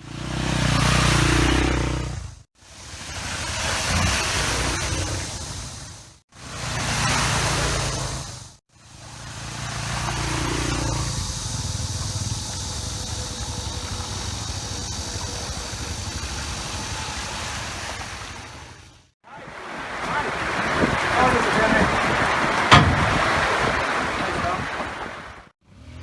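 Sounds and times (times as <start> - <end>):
dirt bike engine running: 0.0 - 19.1
wind and road noise: 0.0 - 26.0.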